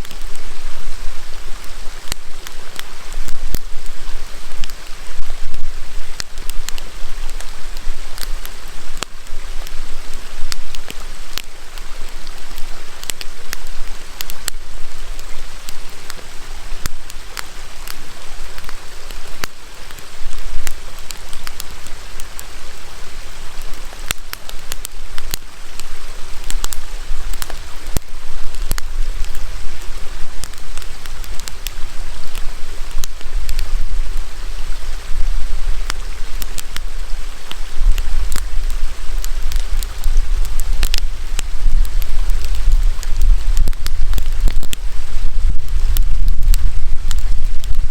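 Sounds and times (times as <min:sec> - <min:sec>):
campfire crackling and popping: 0:00.0 - 0:47.9
river rushing: 0:00.0 - 0:47.9.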